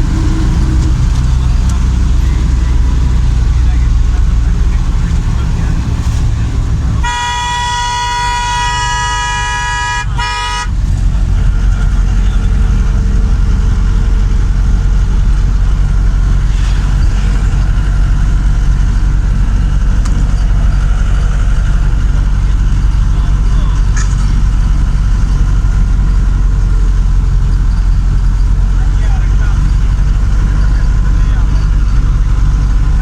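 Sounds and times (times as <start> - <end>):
vehicle rumbling on road: 0.0 - 33.0
vehicle horn blasts: 6.8 - 10.9.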